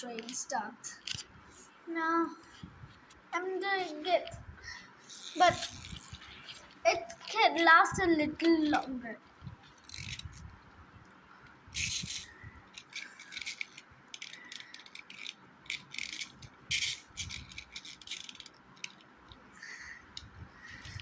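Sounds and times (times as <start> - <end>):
plastic toy train pieces clicking: 1.0 - 1.2, 5.1 - 6.6, 9.8 - 10.3, 11.8 - 19.4.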